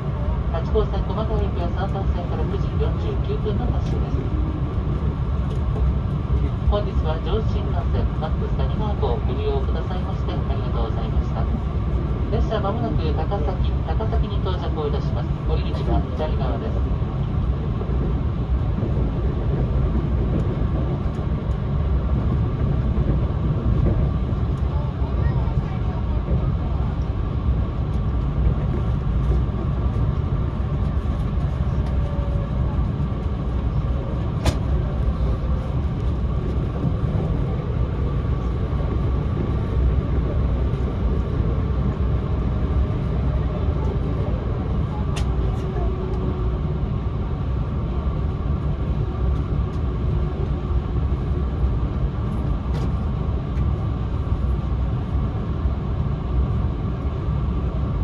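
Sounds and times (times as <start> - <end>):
low rumble of running train: 0.0 - 58.0.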